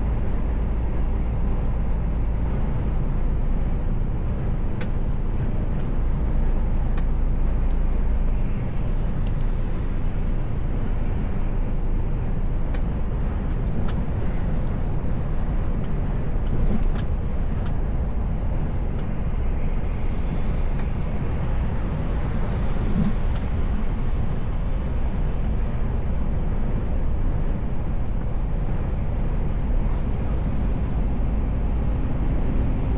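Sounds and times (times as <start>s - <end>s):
truck engine and road drone: 0.0s - 32.9s.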